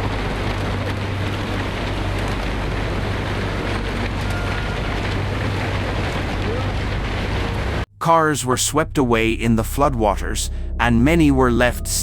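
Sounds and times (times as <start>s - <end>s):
floodwater rushing: 0.0s - 7.8s.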